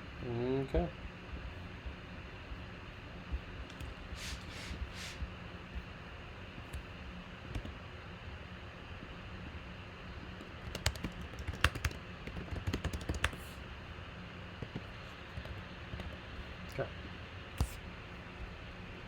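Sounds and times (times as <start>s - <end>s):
steady low hum: 0.0s - 19.0s
keyboard typing: 10.4s - 13.6s, 14.6s - 16.2s.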